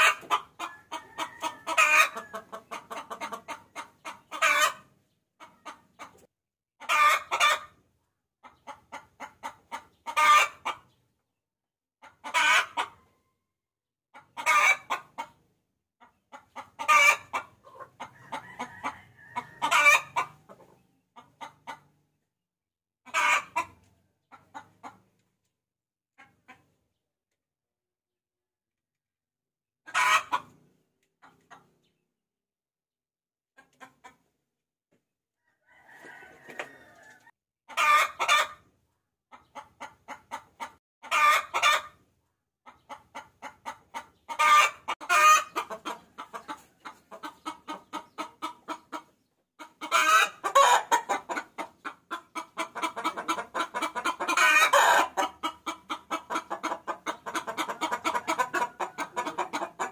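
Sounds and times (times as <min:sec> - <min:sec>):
hen cackling: 0:00.0 - 0:06.2, 0:06.8 - 0:07.8, 0:08.4 - 0:10.8, 0:12.0 - 0:13.0, 0:14.1 - 0:15.4, 0:16.3 - 0:21.9, 0:23.0 - 0:25.0, 0:29.9 - 0:30.5, 0:35.6 - 0:38.6, 0:39.3 - 0:42.0, 0:42.7 - 0:59.9
hen clucking: 0:00.0 - 0:11.2, 0:12.0 - 0:13.2, 0:14.1 - 0:22.2, 0:23.0 - 0:25.4, 0:26.2 - 0:27.0, 0:29.8 - 0:32.0, 0:33.6 - 0:59.9.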